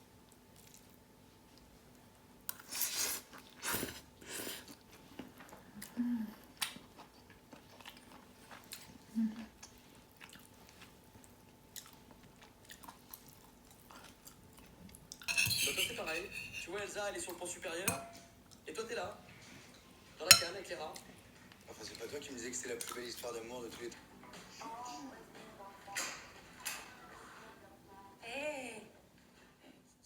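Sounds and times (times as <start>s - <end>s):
person chewing crunchy food: 2.5s - 15.3s.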